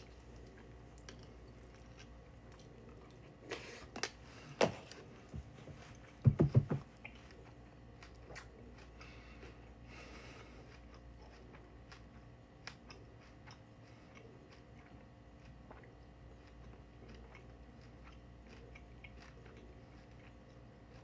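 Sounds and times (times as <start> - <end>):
person chewing cereal: 0.0 - 4.2, 7.0 - 21.0
short knocks: 6.2 - 6.9.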